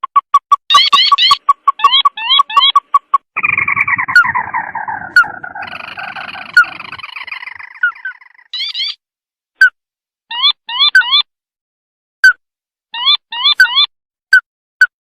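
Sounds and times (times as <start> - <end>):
bird chattering trill: 0.6 - 9.0.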